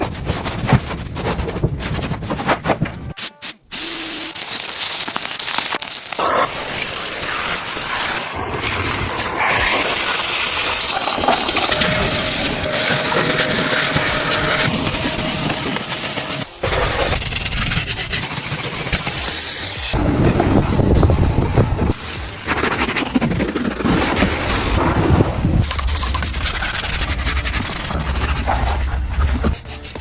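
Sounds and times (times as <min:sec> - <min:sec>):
water spraying hiss: 0:03.7 - 0:18.2.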